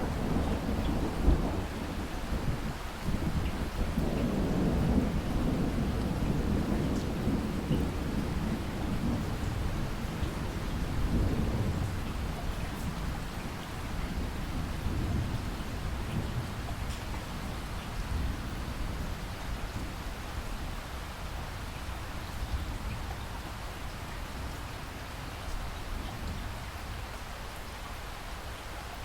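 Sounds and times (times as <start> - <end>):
low rumble of thunder: 0.0 - 27.2
steady rain: 0.0 - 29.0.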